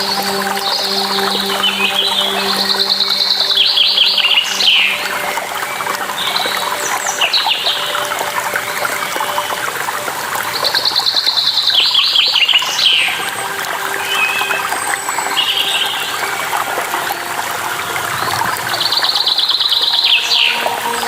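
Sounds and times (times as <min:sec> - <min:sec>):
songbird singing: 0:00.0 - 0:21.0
water splashing and trickling: 0:00.0 - 0:21.0.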